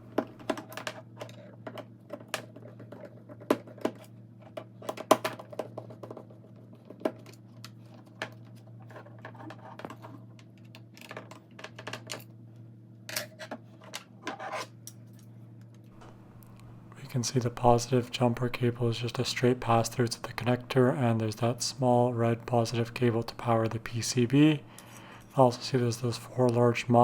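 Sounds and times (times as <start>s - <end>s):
steady low hum: 14.8s - 27.0s.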